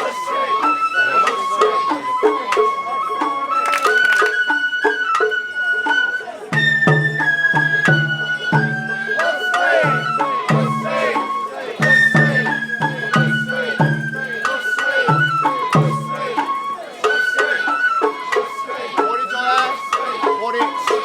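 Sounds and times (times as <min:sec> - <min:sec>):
bamboo flute melody: 0:00.0 - 0:21.0
taiko drums beating: 0:06.5 - 0:16.5.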